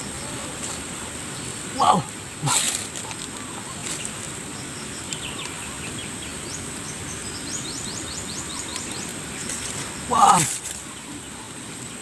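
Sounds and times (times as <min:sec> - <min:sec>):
insect drone: 0:00.0 - 0:12.0
bird chirping: 0:03.3 - 0:10.1.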